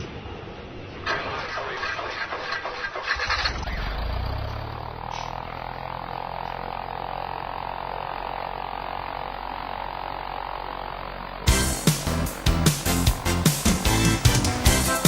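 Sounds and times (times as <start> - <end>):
motor running: 3.4 - 15.0.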